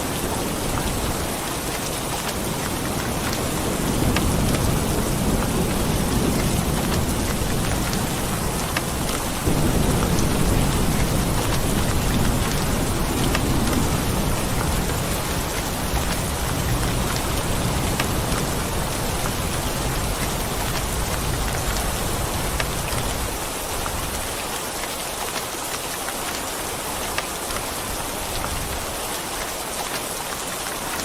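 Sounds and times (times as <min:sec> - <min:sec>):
heavy rain: 0:00.0 - 0:31.0
low rolling thunder: 0:02.5 - 0:23.4.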